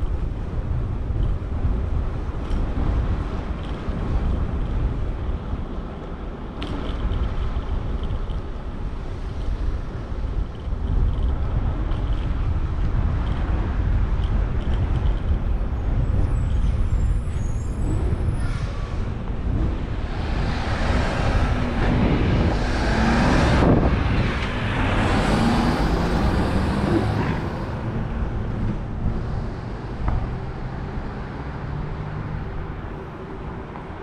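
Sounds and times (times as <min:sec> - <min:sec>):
passing road vehicles: 0:00.0 - 0:34.0
wind rushing over microphone: 0:00.0 - 0:34.0.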